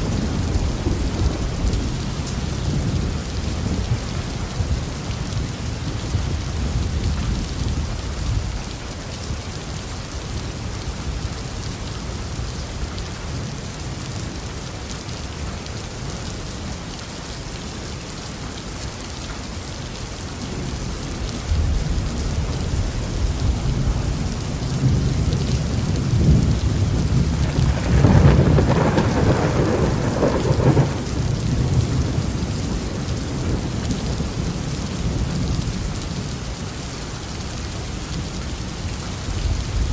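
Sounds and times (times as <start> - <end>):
rolling thunder: 0.0 - 8.6, 20.6 - 36.1
heavy rain: 0.0 - 39.9.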